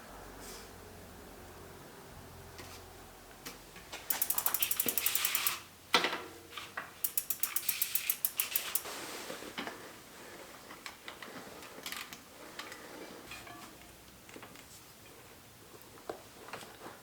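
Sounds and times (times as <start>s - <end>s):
ratchet clicking rapidly: 4.1s - 5.7s, 7.0s - 8.9s.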